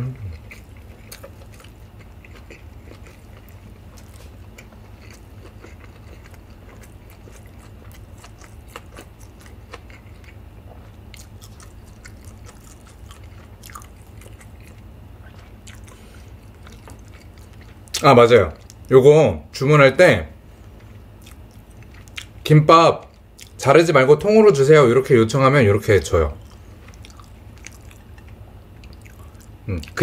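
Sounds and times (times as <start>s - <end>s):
chewing food: 0.2s - 18.9s, 20.6s - 23.6s, 26.0s - 30.0s.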